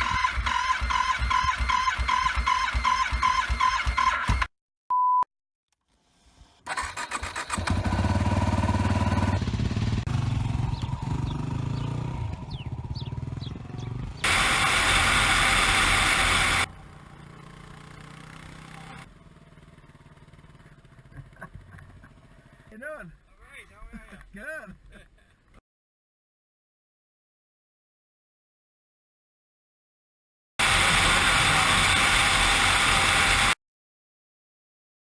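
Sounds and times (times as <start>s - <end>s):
motorcycle engine starting and running: 0.0s - 4.5s, 5.8s - 22.7s, 30.6s - 33.6s
short electronic beep: 0.1s - 5.3s.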